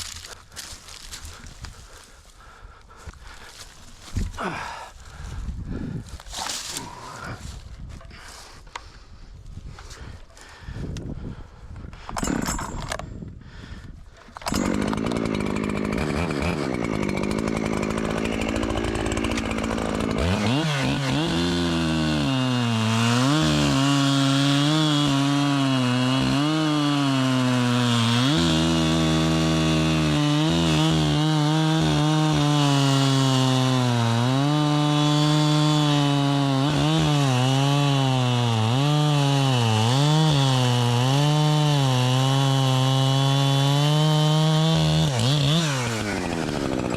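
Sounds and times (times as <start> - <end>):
chainsaw cutting wood: 0.0 - 2.1, 12.0 - 13.3, 14.2 - 46.9.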